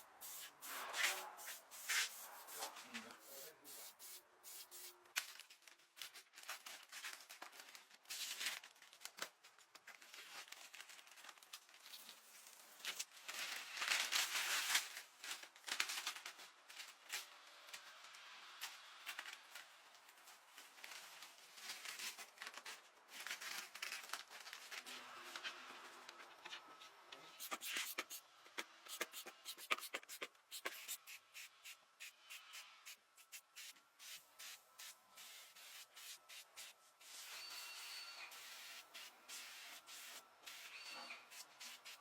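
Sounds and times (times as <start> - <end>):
scraping and rubbing: 27.4 - 31.5.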